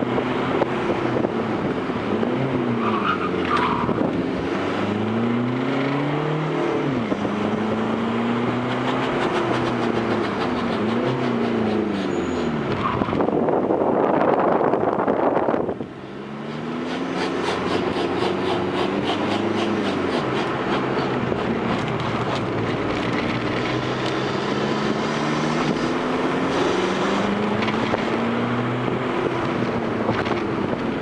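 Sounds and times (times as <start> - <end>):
diesel engine revving: 0.0 - 31.0.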